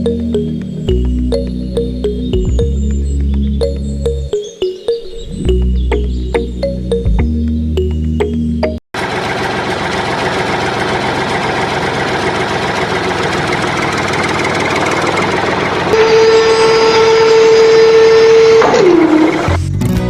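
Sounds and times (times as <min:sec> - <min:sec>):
steady whine: 0:11.8 - 0:19.6
small motor buzzing: 0:15.9 - 0:19.5.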